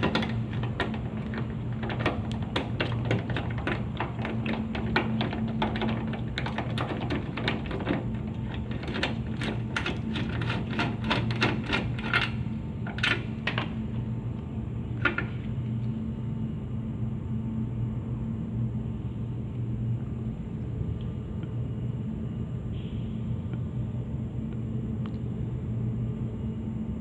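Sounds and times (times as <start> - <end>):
hand tools clicking and tapping: 0.0 - 14.1.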